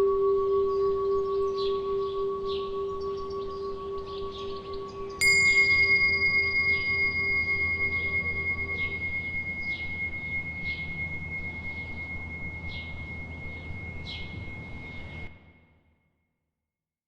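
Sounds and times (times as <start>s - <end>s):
small birds chirping: 0.5s - 15.3s
bell ringing: 5.2s - 15.4s.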